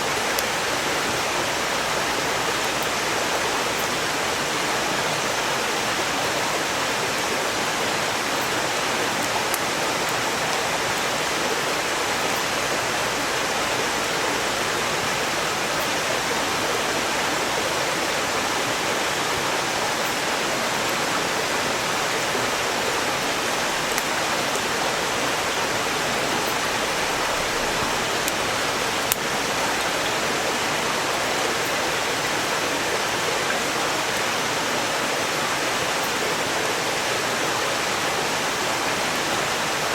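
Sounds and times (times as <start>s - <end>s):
stream rushing: 0.0s - 39.9s
firewood crackling and popping: 23.2s - 24.2s, 26.4s - 29.8s.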